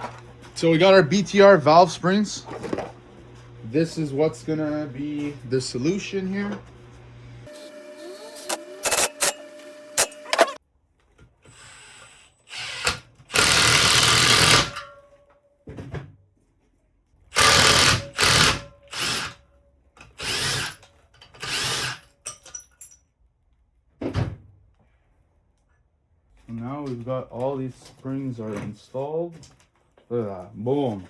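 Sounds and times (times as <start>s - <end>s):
power tool bursts: 7.5s - 10.6s, 11.5s - 14.8s, 17.3s - 19.4s, 20.2s - 20.8s, 21.4s - 22.0s.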